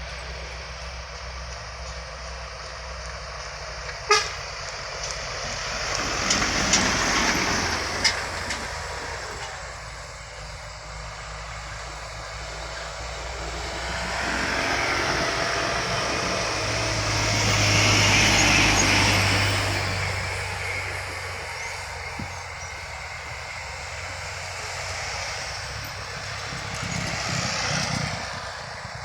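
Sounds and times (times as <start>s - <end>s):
heavy trucks passing: 0.0s - 29.0s
horn toot: 4.1s - 4.5s.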